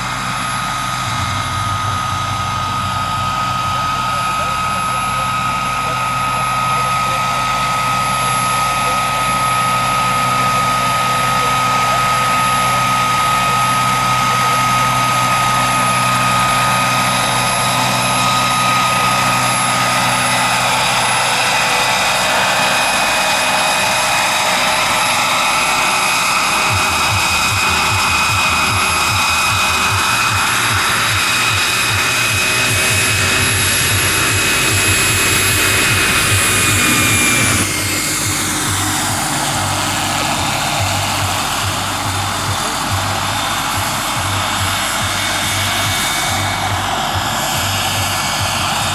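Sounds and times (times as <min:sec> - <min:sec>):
low rhythmic rotor beat: 0:00.0 - 0:48.9
model helicopter whine: 0:00.0 - 0:48.9.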